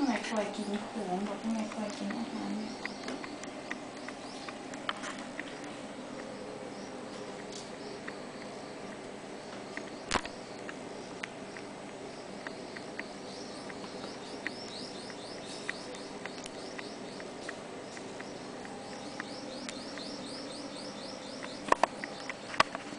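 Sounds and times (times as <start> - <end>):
bird chirping: 0.0 - 22.9
small clicks: 9.7 - 20.4.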